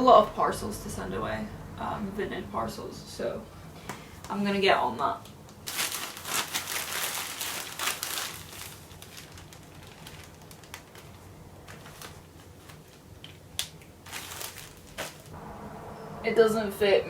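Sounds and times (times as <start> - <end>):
packaging and clothing rustling: 5.6 - 13.4, 14.0 - 15.4.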